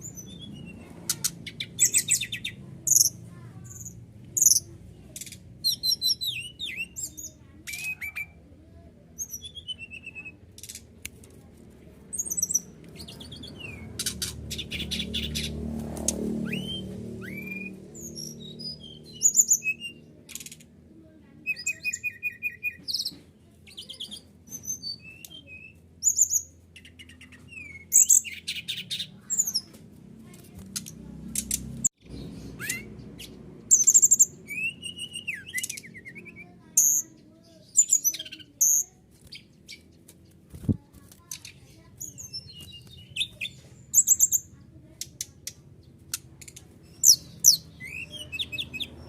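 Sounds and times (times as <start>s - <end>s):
bird song with whistles and trills: 0.0s - 4.7s, 5.6s - 8.4s, 9.2s - 10.4s, 16.4s - 20.1s, 21.5s - 29.7s, 32.0s - 39.9s, 42.0s - 44.5s, 46.9s - 49.0s.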